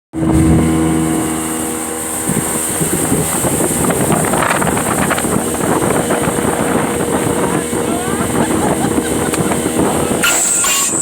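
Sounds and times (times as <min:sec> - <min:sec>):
jet ski engine running: 0:00.1 - 0:11.0.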